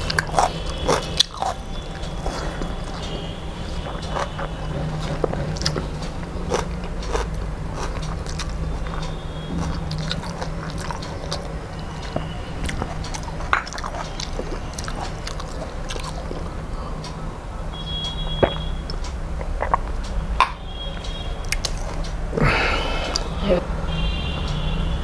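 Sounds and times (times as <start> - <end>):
person chewing: 0.0 - 16.6, 18.4 - 20.0, 21.4 - 23.4
steady low hum: 0.0 - 25.0.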